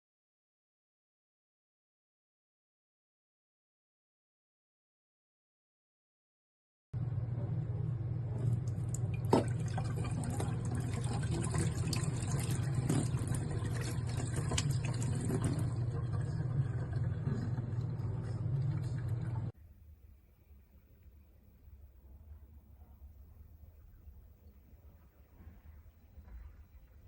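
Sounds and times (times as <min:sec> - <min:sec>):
steady low hum: 0:07.0 - 0:27.0
water bubbling in electric kettle: 0:08.2 - 0:19.6.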